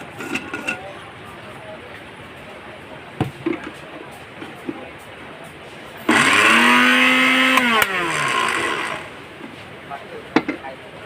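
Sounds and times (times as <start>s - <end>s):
blender motor whining: 6.1s - 9.2s.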